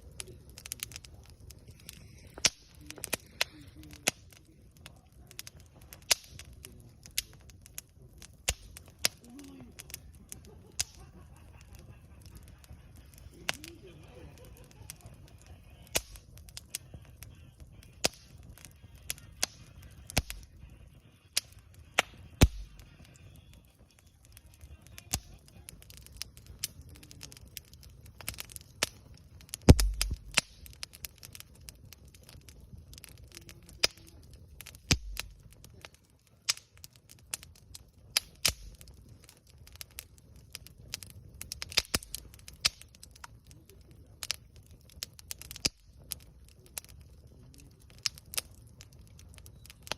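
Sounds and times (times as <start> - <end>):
campfire crackling and popping: 0.0 - 49.9
low thud: 29.7 - 30.3.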